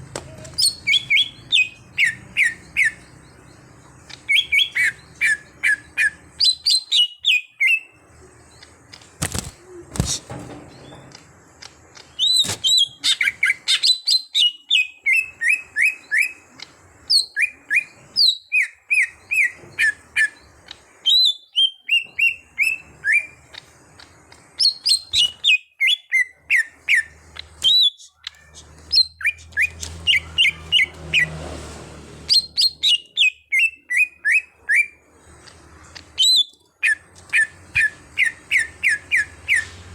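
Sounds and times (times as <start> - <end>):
bird singing whistled notes: 4.2 - 8.0, 17.1 - 23.6, 24.6 - 30.9, 32.3 - 35.0, 36.2 - 39.8.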